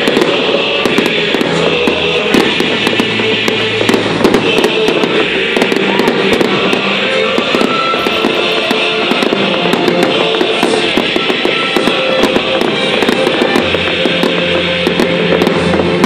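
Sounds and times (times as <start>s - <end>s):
fireworks crackling and popping: 0.0s - 16.0s
music over loudspeakers: 0.0s - 16.0s.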